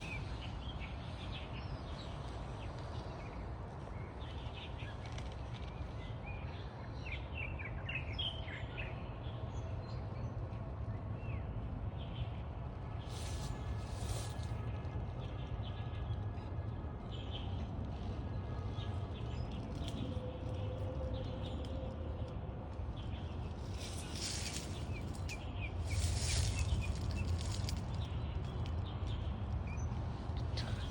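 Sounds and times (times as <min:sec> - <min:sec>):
low background rumble: 0:09.3 - 0:30.9
small birds chirping: 0:22.9 - 0:30.9.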